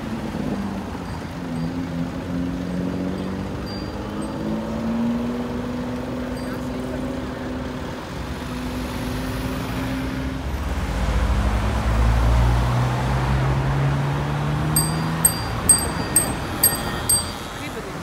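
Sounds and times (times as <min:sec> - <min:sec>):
car engine pulling away: 0:00.0 - 0:15.7
high-pitched ringing ticks: 0:14.8 - 0:17.8.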